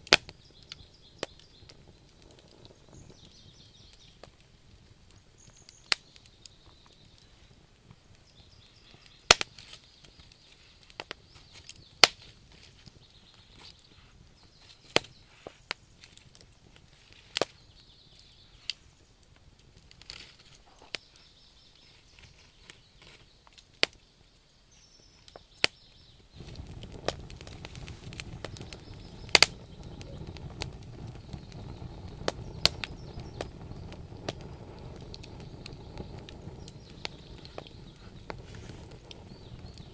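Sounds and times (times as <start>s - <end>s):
wood campfire crackling: 0.0s - 39.9s
low steady rushing noise: 26.4s - 39.9s.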